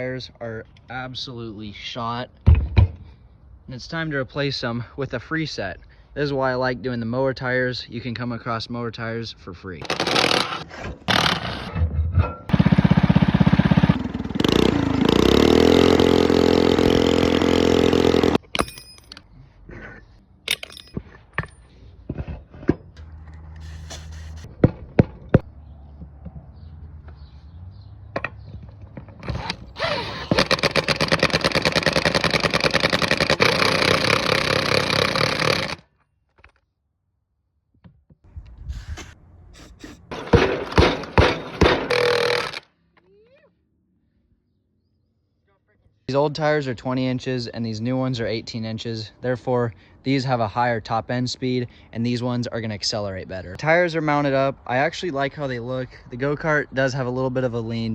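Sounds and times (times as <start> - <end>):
power tool motor whining: 9.8 - 11.7, 12.5 - 18.4, 29.2 - 35.8, 41.1 - 42.6
power tool rattling: 9.8 - 11.9, 12.5 - 19.2, 29.1 - 35.8, 39.0 - 42.6
metal parts knocking: 18.4 - 19.3, 20.5 - 21.6, 39.6 - 42.6.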